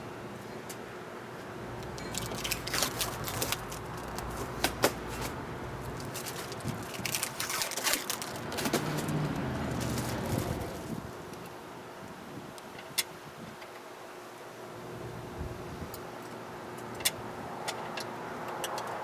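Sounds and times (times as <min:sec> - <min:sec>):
tape crackling as peeled: 0:01.8 - 0:11.5.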